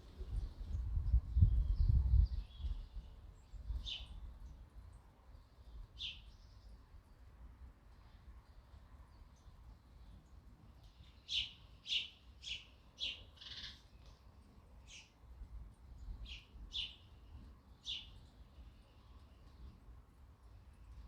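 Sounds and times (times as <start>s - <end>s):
sparrows chirping: 1.4s - 6.8s, 10.8s - 14.2s, 14.8s - 15.2s, 16.0s - 19.8s.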